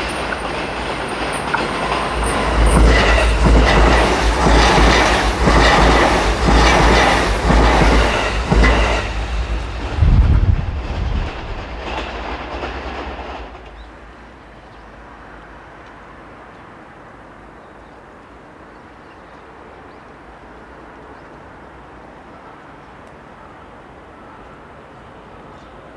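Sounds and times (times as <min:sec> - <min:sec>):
train wheels clacking over rail joints: 0:00.0 - 0:14.2.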